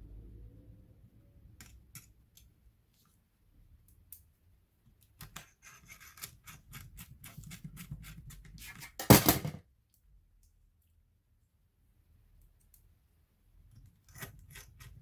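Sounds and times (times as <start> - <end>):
laptop parts clicking and scraping: 4.9 - 9.5, 13.7 - 15.0.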